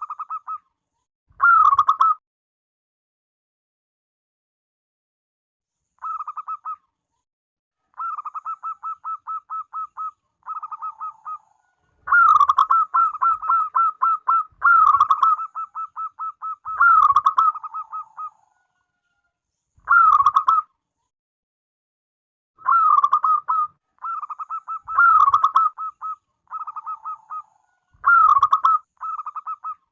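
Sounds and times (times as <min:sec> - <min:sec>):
dove cooing in rolling notes: 0:06.0 - 0:06.8, 0:08.0 - 0:18.4, 0:19.9 - 0:20.6, 0:22.6 - 0:29.8.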